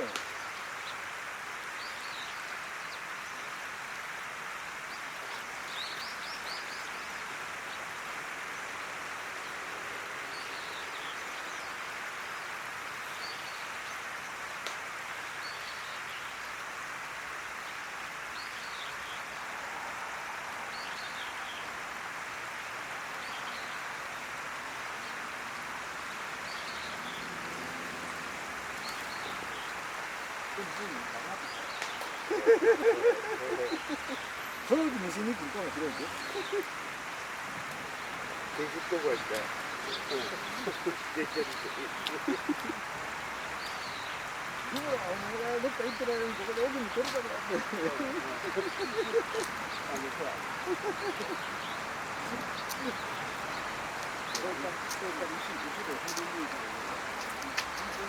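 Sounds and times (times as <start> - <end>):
short high bird calls: 28.8 - 37.0.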